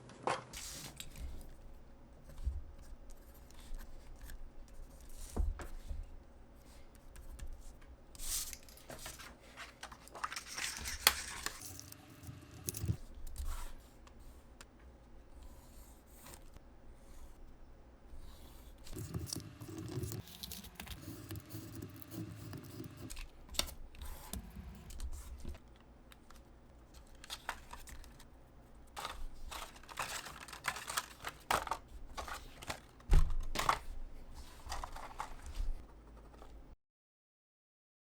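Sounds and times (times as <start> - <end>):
material rustling and tearing: 6.8 - 12.0, 15.4 - 25.6, 26.2 - 35.8.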